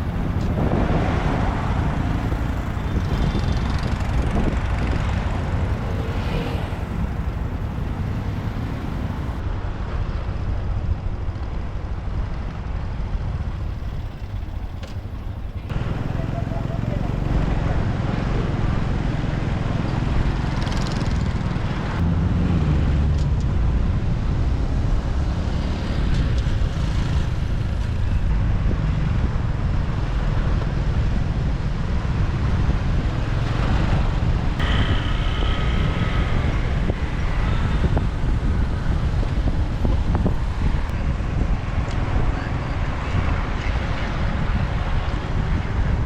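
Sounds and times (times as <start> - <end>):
motorbike engine rumble: 0.0 - 46.0
passing vehicles: 0.0 - 46.0
road noise: 0.0 - 46.0
steady high tone: 34.6 - 38.0.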